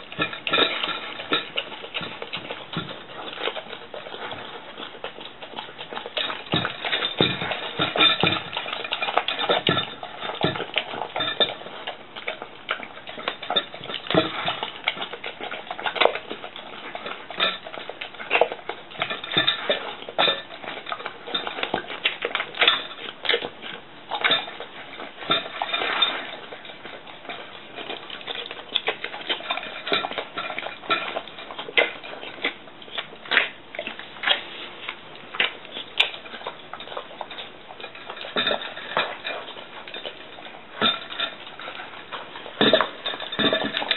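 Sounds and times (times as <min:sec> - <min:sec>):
dog chewing and licking: 0:00.0 - 0:43.9
dish clinking and knocking: 0:06.2 - 0:11.6, 0:42.6 - 0:43.9.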